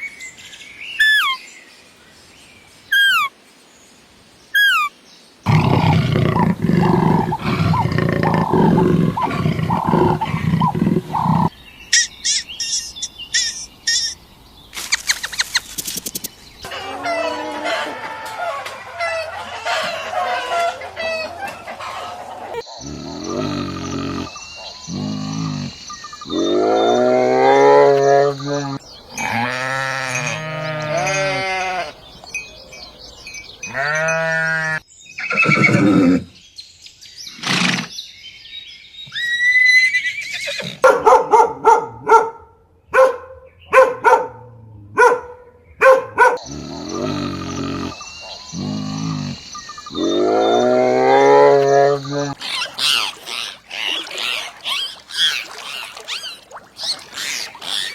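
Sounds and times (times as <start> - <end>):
short sharp animal calls: 2.9 - 3.3, 4.6 - 4.9
goats bleating: 29.2 - 32.0.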